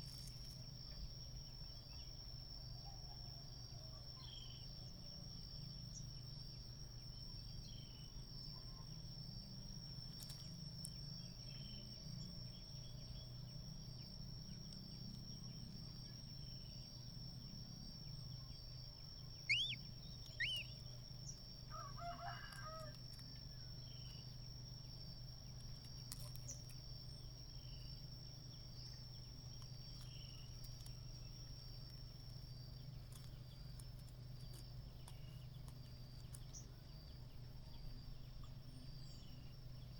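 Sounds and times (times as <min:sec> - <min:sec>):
sharp bird chirps: 0:19.4 - 0:20.8
high-pitched insect drone: 0:19.5 - 0:20.8
distant rooster crowing: 0:21.7 - 0:23.0.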